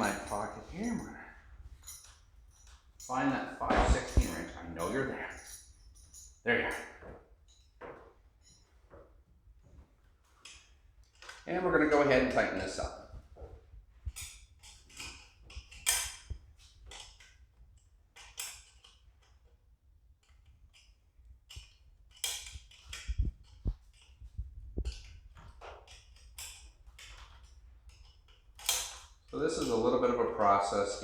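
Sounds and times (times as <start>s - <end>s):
wrench clicking on metal: 20.2s - 24.2s, 24.8s - 29.7s.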